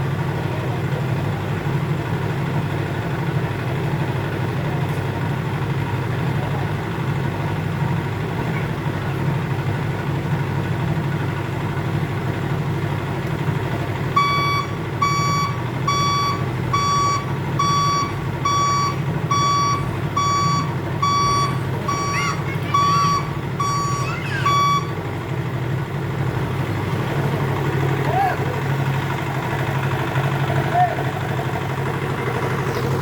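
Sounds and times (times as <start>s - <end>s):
diesel engine running: 0.0s - 33.0s
reverse alarm beeping: 14.2s - 25.0s.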